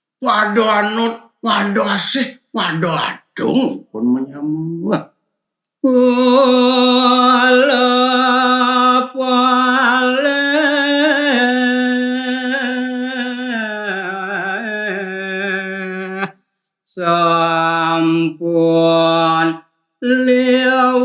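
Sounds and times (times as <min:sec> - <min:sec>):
man singing: 0:05.8 - 0:16.3, 0:16.9 - 0:21.0.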